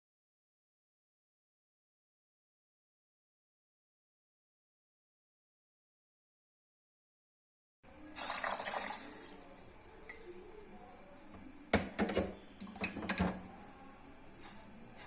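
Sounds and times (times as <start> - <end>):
liquid pouring into a pot: 8.1 - 10.4.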